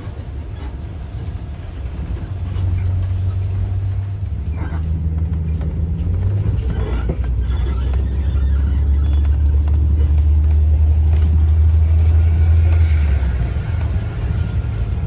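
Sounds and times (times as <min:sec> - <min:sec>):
low engine rumble: 0:00.0 - 0:15.0
faint voices: 0:06.4 - 0:15.0.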